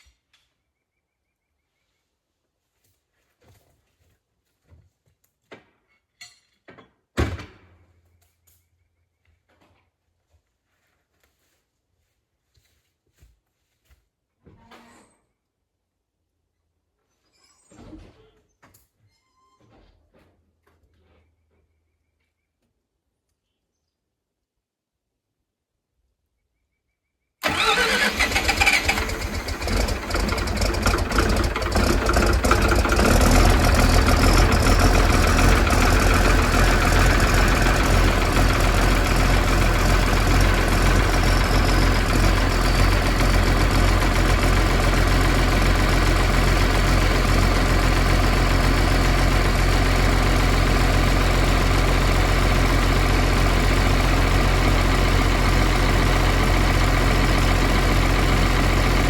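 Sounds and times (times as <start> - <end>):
diesel engine starting and idling: 27.4 - 59.0.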